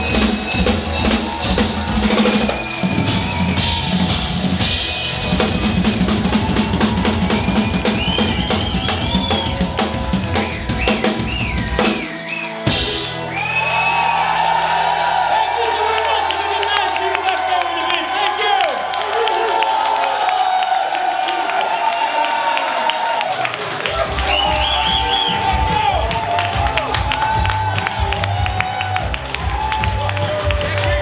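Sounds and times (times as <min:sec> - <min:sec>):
drum kit: 0:00.0 - 0:14.5, 0:23.8 - 0:31.0
live rock band playing: 0:00.0 - 0:14.8, 0:24.0 - 0:31.0
lead melody: 0:00.0 - 0:17.3.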